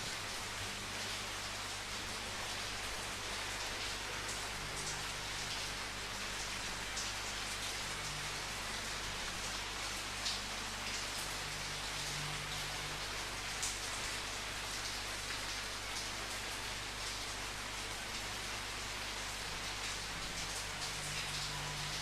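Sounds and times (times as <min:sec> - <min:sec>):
rain drops pattering: 0:00.0 - 0:22.0.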